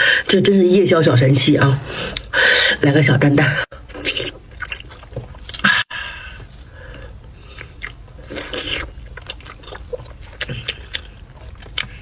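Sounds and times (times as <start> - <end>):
chewing and mouth sounds: 3.9 - 5.8, 6.9 - 12.0.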